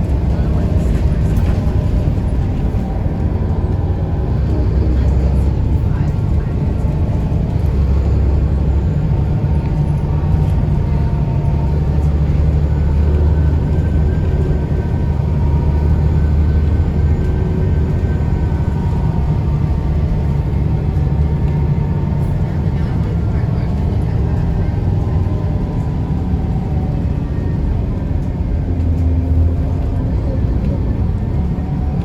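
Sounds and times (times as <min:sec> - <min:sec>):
bus diesel engine rumbling: 0:00.0 - 0:32.0.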